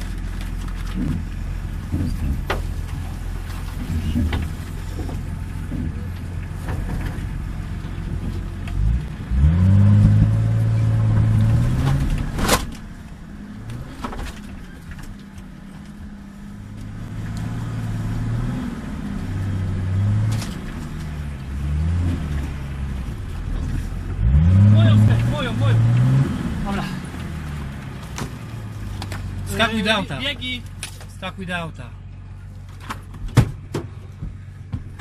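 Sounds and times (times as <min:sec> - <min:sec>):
engine revving hard: 0:08.8 - 0:12.3, 0:24.2 - 0:27.0.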